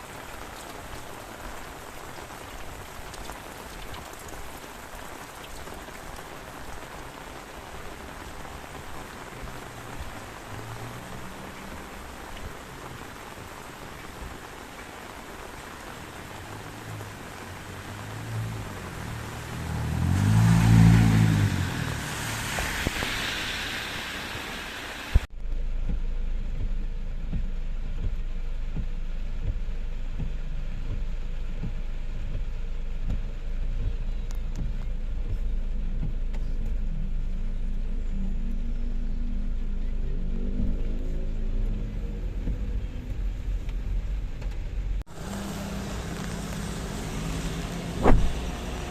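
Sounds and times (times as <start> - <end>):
vehicle passing on wet road: 0.0 - 25.3, 36.8 - 48.9
steady rain: 0.0 - 48.9
steady low rumble with dull hiss: 25.1 - 48.9.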